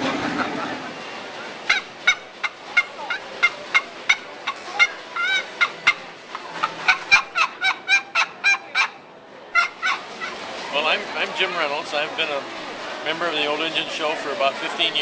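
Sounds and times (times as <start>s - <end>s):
fowl calling: 1.7s - 10.4s.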